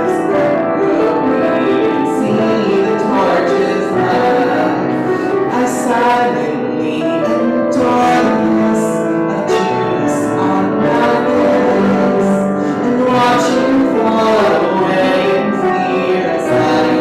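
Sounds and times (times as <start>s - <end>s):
person singing: 0.0s - 17.0s
piano accompaniment: 0.0s - 17.0s.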